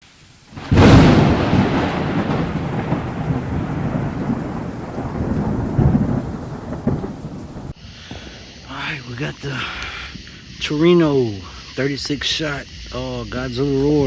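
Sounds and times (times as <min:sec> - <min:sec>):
firework report: 0:00.2 - 0:09.0
rolling rumble echoing: 0:00.6 - 0:07.8.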